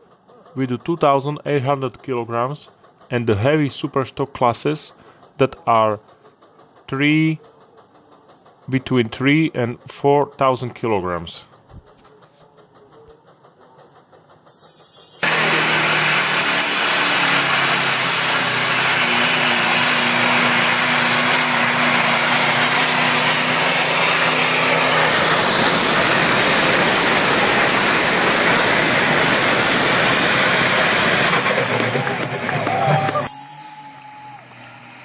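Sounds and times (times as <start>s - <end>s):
tractor engine droning under load: 14.3s - 35.0s
rushing noise: 15.0s - 35.0s.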